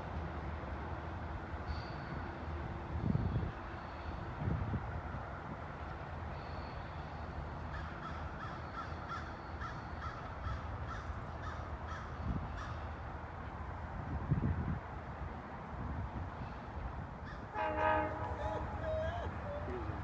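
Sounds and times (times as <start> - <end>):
bird calling: 17.6 - 20.0.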